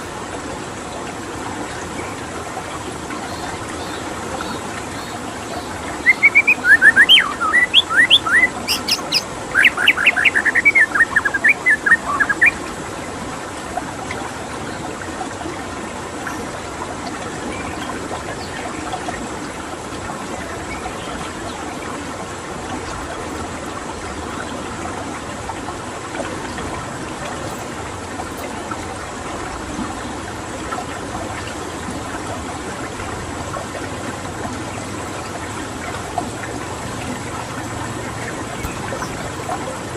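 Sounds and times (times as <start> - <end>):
running water: 0.0 - 39.9
bird singing whistled notes: 3.3 - 12.6.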